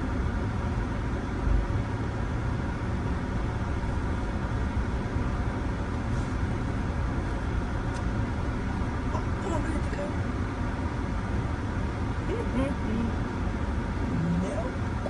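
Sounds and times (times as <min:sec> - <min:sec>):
car cabin rumble and hiss: 0:00.0 - 0:15.0.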